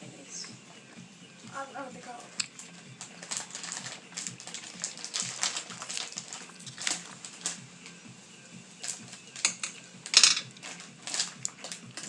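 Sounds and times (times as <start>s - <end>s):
plastic snack bag crinkling: 2.4s - 7.6s, 8.8s - 12.0s.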